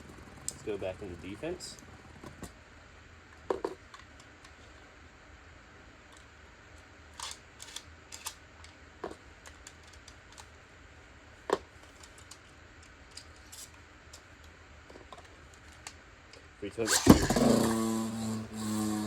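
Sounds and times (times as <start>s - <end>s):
plastic parts clicking and tapping: 7.2s - 10.5s, 11.4s - 16.4s.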